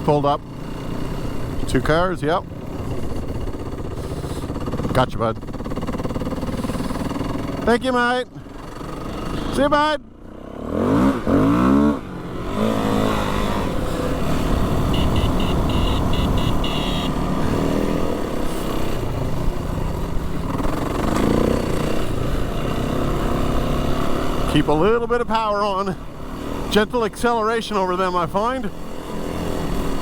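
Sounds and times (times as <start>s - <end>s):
dirt bike engine accelerating: 0.0s - 30.0s
high pulsing beeps: 14.8s - 17.2s.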